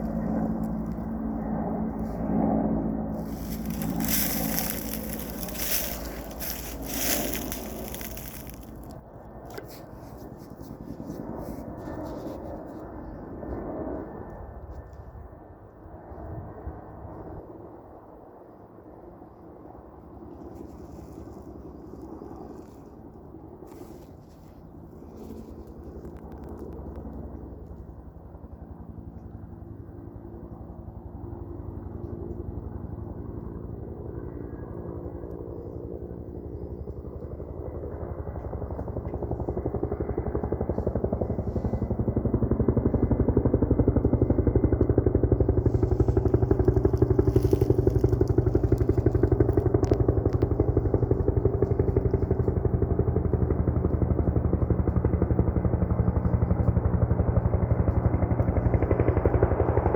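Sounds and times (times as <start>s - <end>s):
helicopter rotor chop: 0.0s - 12.9s, 20.3s - 59.9s.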